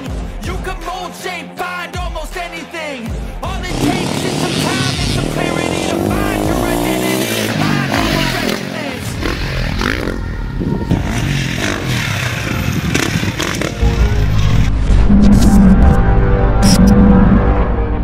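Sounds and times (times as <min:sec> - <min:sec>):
heavy bass music: 0:03.1 - 0:18.0
motocross bike engines revving: 0:03.5 - 0:13.9.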